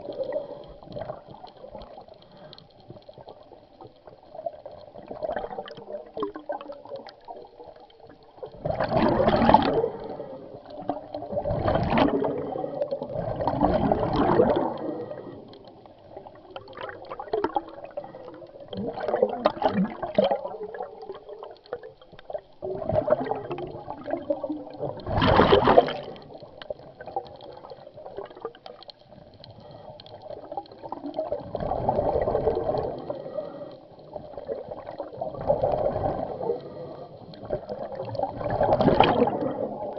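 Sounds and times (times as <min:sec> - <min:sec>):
bubbles gurgling: 0:00.0 - 0:02.2, 0:02.8 - 0:29.4, 0:30.1 - 0:39.9
diver breathing through regulator: 0:09.3 - 0:10.7, 0:14.4 - 0:15.8, 0:29.5 - 0:30.6, 0:32.5 - 0:34.3, 0:35.7 - 0:37.5.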